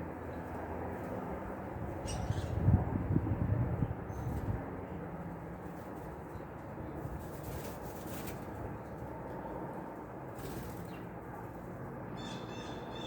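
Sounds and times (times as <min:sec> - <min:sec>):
songbird calling: 0:12.2 - 0:13.0.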